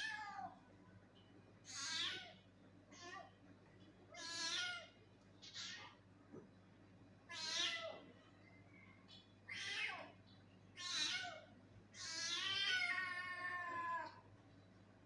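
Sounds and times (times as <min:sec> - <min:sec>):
cat meowing: 0:01.7 - 0:02.4, 0:04.2 - 0:06.0, 0:07.3 - 0:08.0, 0:10.8 - 0:14.2.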